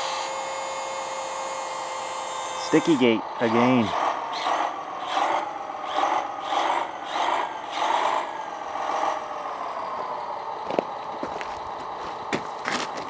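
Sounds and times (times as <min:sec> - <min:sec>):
electric motor whining: 0:00.0 - 0:10.1.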